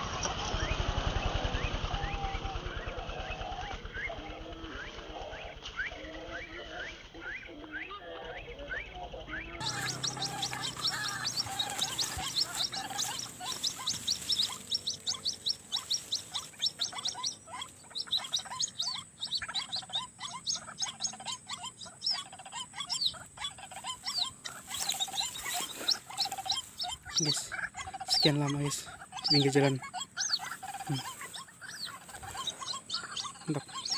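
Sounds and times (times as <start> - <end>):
waterhens calling rapidly: 9.6 - 33.9.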